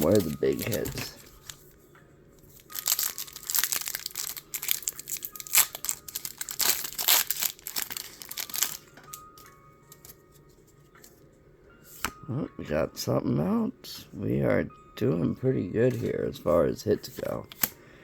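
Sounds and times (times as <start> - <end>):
packaging being torn and crinkled: 0.0 - 1.6, 2.5 - 10.2.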